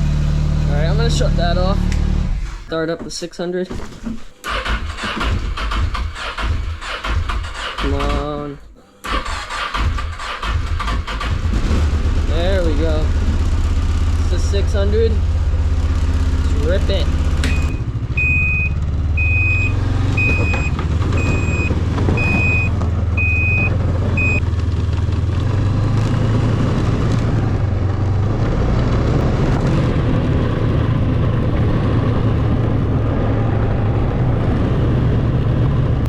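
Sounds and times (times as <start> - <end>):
reverse alarm beeps: 17.4 - 24.4.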